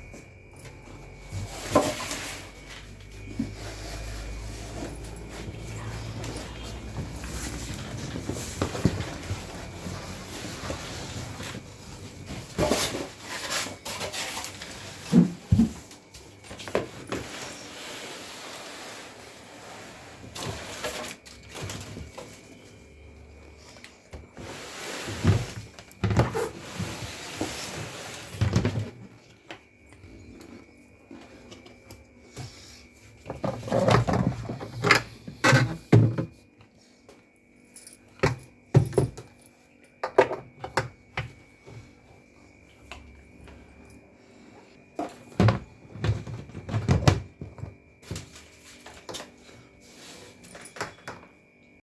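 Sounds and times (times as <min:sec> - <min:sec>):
knocks and bumps of handling: 0:38.2 - 0:41.9.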